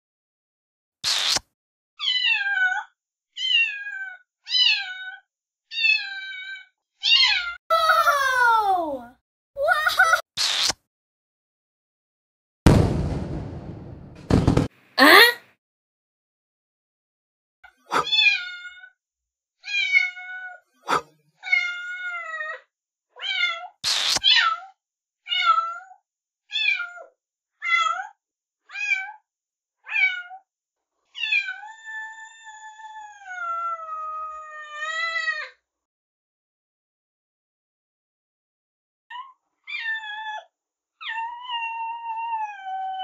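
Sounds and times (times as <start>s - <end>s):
short loud noise: 12.7s - 15.4s.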